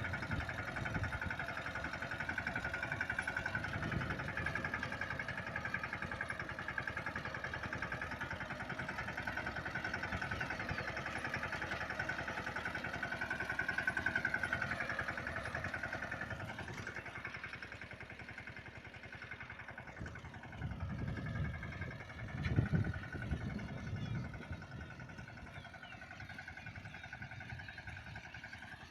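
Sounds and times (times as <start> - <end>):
tractor diesel engine running: 0.0 - 28.9
low rumbles: 19.6 - 26.0.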